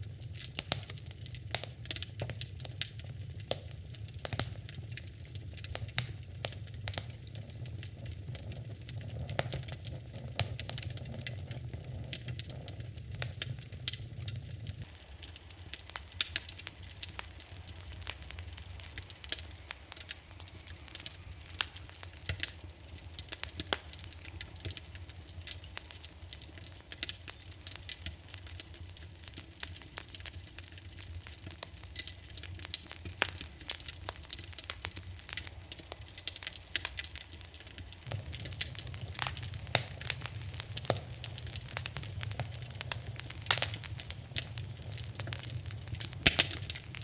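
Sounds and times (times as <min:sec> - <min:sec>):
fire crackling and popping: 0:00.0 - 0:47.0
low rumble of flames: 0:00.0 - 0:47.0.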